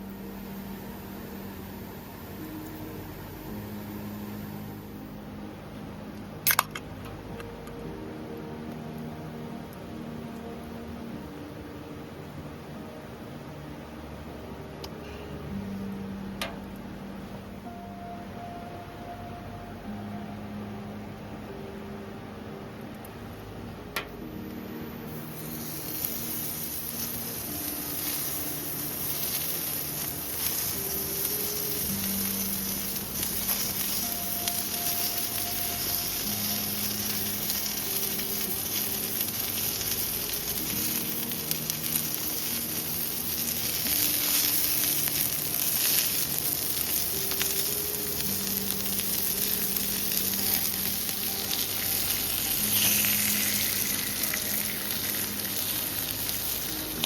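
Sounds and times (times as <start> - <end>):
food sizzling in a hot pan: 24.2 - 57.0.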